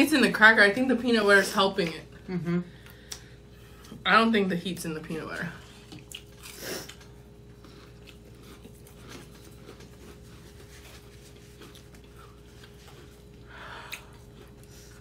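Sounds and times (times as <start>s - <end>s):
people chewing crackers: 5.6s - 15.0s.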